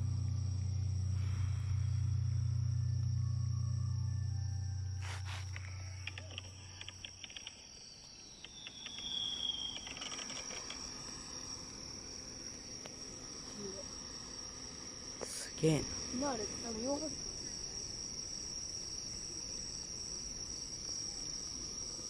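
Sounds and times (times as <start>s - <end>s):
low rumble: 0.0s - 7.1s
crickets trilling: 0.0s - 22.0s.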